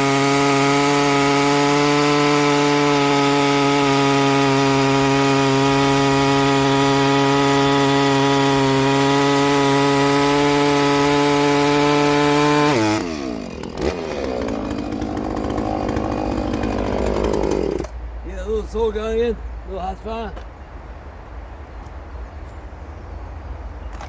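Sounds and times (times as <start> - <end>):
chainsaw cutting wood: 0.0 - 18.0.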